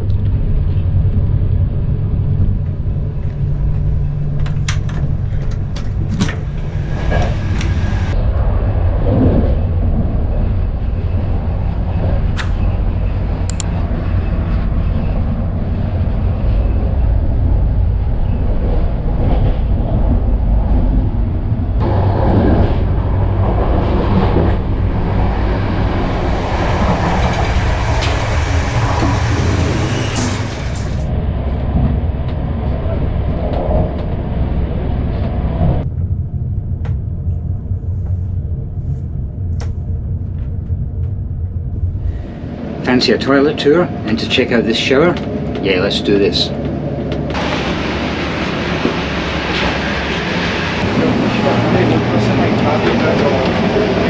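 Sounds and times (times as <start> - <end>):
train wheels rumbling on track: 0.0 - 54.0
rushing noise: 21.6 - 31.8, 46.8 - 54.0.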